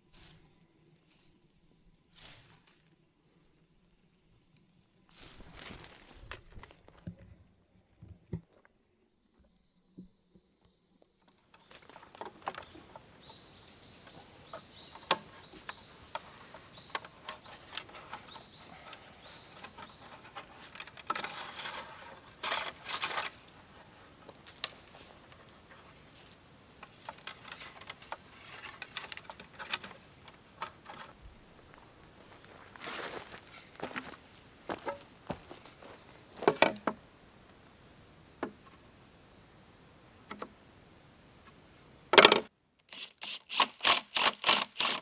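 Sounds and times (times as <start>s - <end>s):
rustling and scraping: 11.4s - 37.0s.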